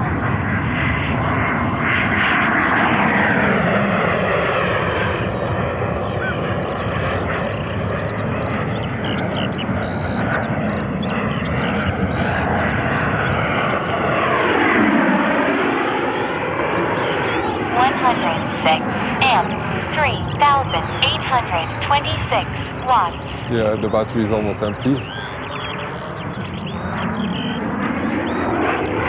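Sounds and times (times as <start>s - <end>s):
model jet fan whine passing: 0.0s - 21.0s.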